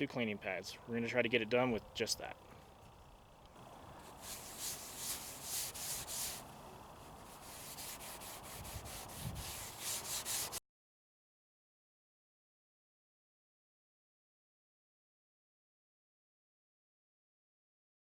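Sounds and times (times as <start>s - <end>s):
pad scrubbing plastic lens: 3.9s - 10.6s.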